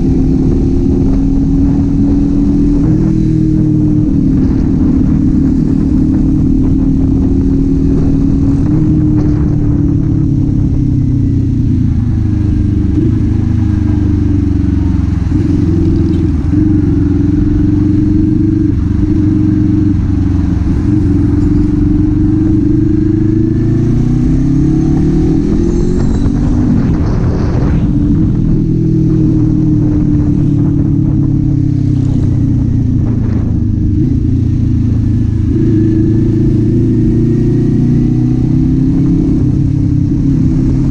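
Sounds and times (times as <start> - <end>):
motorcycle engine and exhaust: 0.0 - 40.9.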